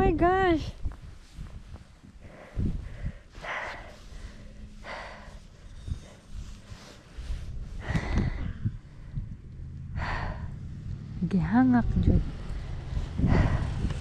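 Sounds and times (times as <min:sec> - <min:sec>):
low rumble: 0:00.0 - 0:14.0
person breathing hard: 0:02.1 - 0:10.7, 0:13.0 - 0:14.0.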